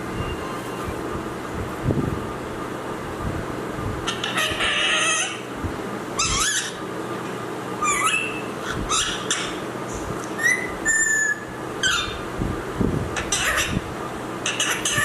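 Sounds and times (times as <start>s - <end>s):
parrot calling and whistling: 4.1s - 5.5s, 6.2s - 6.8s, 7.8s - 9.6s, 10.2s - 12.2s, 13.2s - 13.8s, 14.4s - 15.0s.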